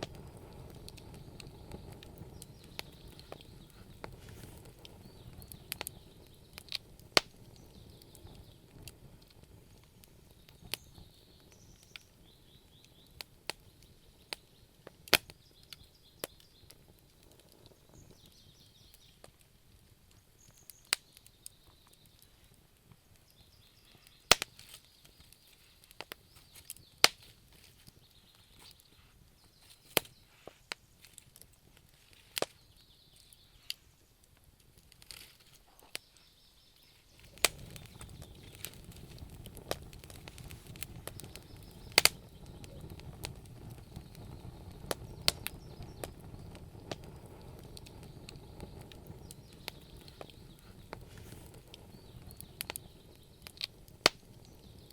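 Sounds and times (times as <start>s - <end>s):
low rumble of flames: 0.0s - 54.9s
wood fire crackling and popping: 0.0s - 54.9s.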